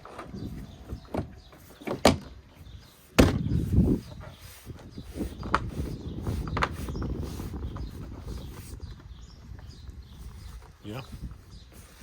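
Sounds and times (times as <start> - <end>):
loud thump: 3.2 - 3.6.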